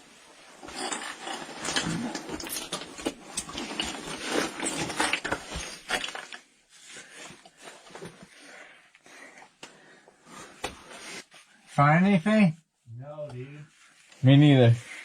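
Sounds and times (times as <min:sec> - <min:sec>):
clothing and gear scraping rock: 0:03.4 - 0:06.0.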